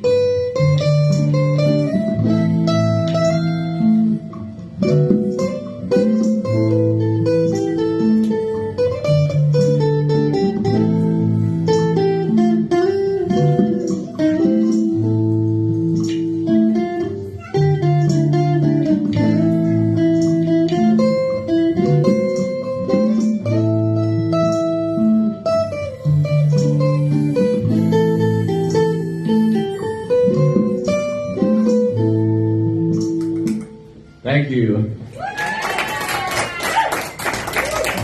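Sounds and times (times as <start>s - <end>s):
guitar strumming chords: 0.0s - 34.7s.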